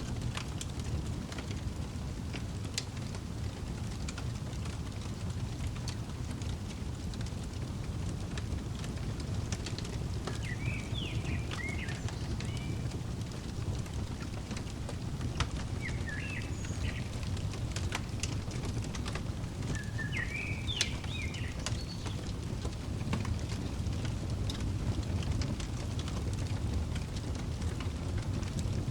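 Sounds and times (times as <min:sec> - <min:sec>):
fireplace crackling: 0:00.0 - 0:28.9
songbird chirping: 0:09.5 - 0:23.6.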